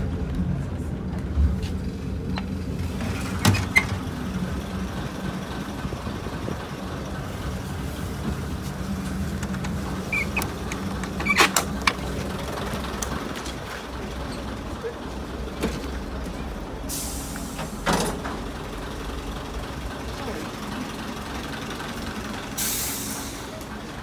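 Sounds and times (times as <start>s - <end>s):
diesel train droning: 0.0s - 24.0s
sharp clicks and knocks: 9.4s - 12.2s.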